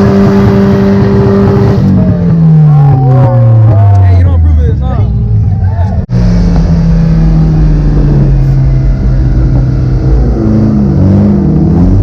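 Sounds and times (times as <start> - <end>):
car engine revving hard: 0.0 - 3.7, 6.1 - 12.0.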